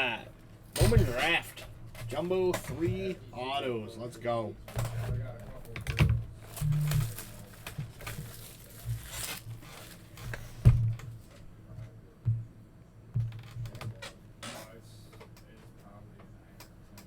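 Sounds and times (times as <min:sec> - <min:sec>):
foil wrappers crinkling and tearing: 0:06.4 - 0:10.5.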